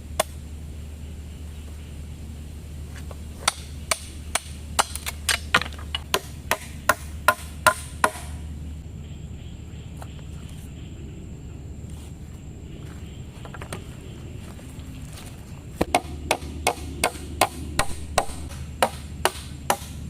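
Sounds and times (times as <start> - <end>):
blade chopping into wood: 3.4 - 8.4, 15.8 - 20.0.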